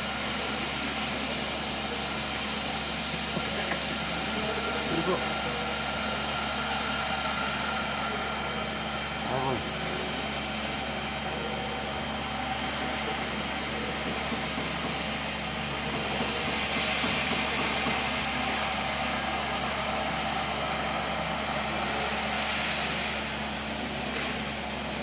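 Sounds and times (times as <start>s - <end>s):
machine motor hum: 0.0s - 25.0s.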